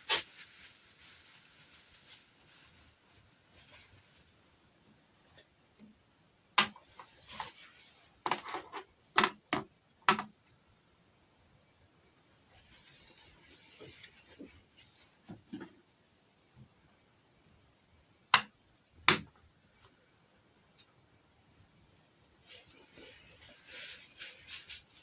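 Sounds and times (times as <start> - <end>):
packaging rustling: 0.0 - 3.0.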